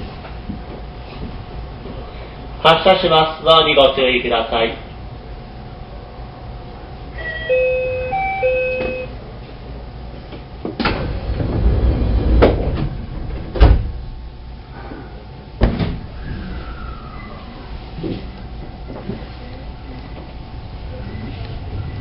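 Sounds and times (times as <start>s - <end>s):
short electronic chime: 7.2s - 9.1s
train doors closing with thuds: 7.2s - 9.1s, 10.6s - 14.0s, 15.6s - 16.1s.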